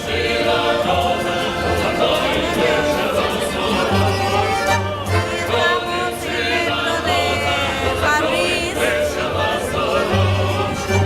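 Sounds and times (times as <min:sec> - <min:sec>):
group singing in harmony: 0:00.0 - 0:11.0.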